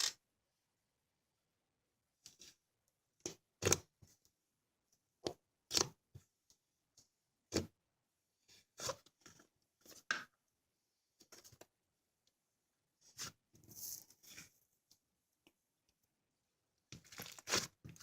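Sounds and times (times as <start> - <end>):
slime squishing and crackling: 16.9 - 18.0.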